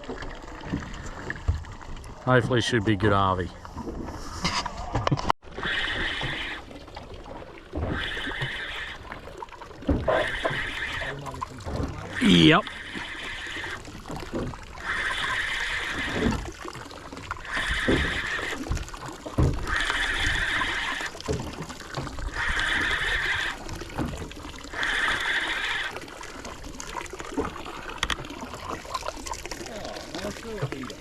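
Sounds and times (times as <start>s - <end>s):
water slapping against hull: 0.0s - 31.0s
fishing reel whirring: 24.7s - 26.0s.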